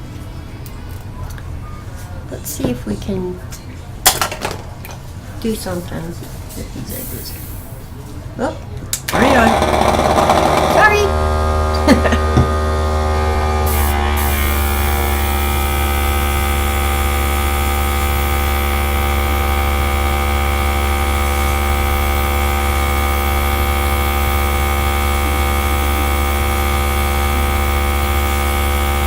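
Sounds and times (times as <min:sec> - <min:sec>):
electric air gun motor whine: 0:09.1 - 0:29.0.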